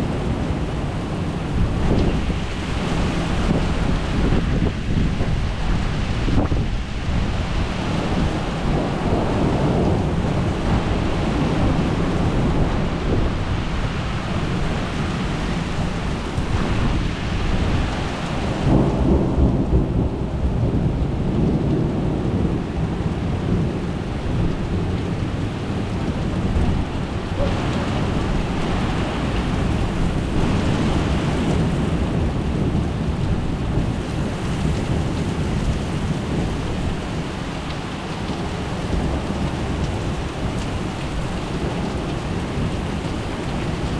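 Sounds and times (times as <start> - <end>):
low rumbling thunder: 0.0 - 37.6, 38.2 - 43.9
steady rain: 0.0 - 43.9.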